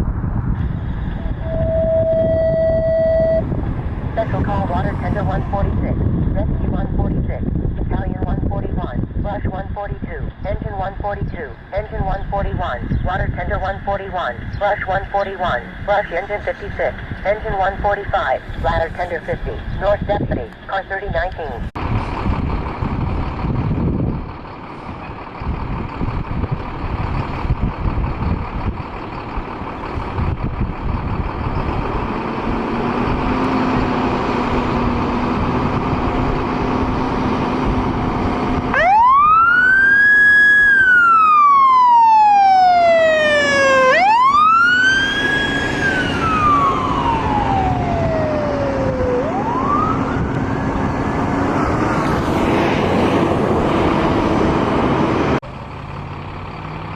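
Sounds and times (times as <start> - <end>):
low truck rumble: 0.0 - 56.9
siren wailing: 1.2 - 6.6, 38.6 - 55.0.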